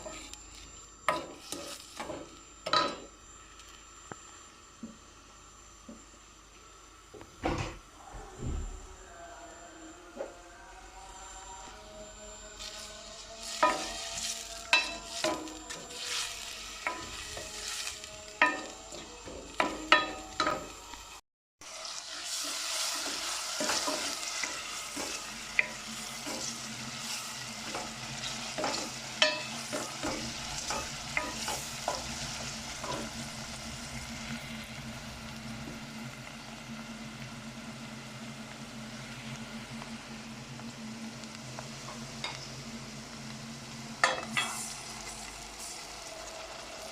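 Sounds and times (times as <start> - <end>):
vegetables sizzling in oil: 0.0 - 3.1, 12.5 - 46.9.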